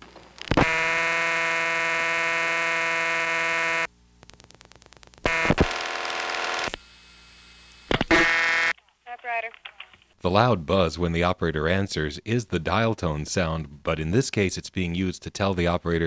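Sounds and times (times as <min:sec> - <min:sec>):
buzzy dial tone: 0:00.4 - 0:09.4.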